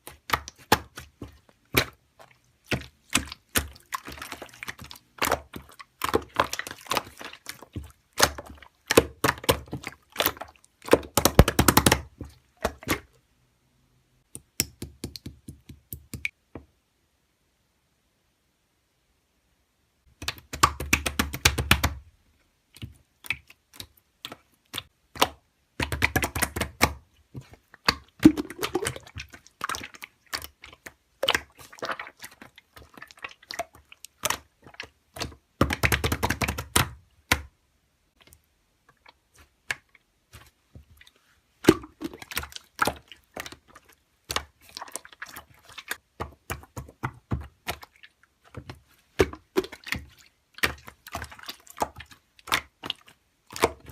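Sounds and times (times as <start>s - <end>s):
slime crackling and squishing: 0.0s - 13.1s, 22.7s - 37.5s, 39.0s - 53.9s.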